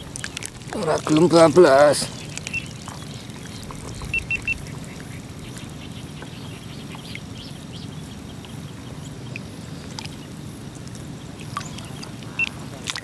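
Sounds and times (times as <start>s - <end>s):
steady low background noise: 0.0s - 13.0s
bird high chirps: 2.1s - 8.0s.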